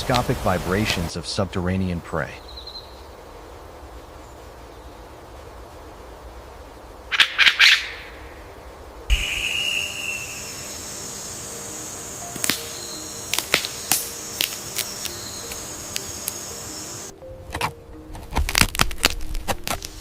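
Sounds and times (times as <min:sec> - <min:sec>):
high hiss-like drone: 0:00.0 - 0:17.2
soft background music: 0:10.2 - 0:20.0.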